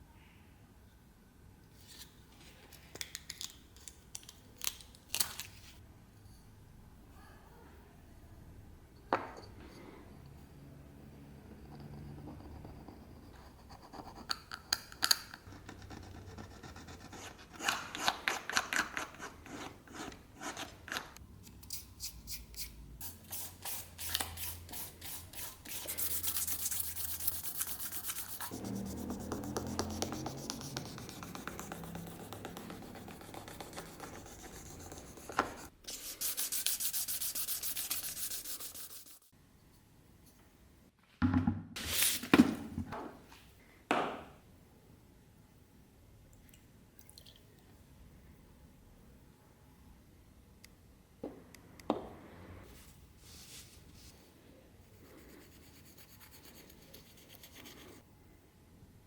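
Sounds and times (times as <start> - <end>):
brush scrubbing knife: 23.0 - 31.2, 32.0 - 39.3.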